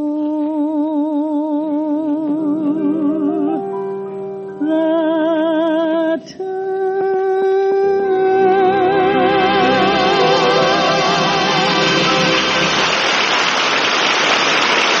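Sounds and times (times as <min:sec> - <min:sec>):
woman singing long notes: 0:00.0 - 0:03.7, 0:04.6 - 0:12.4
orchestra: 0:08.2 - 0:15.0.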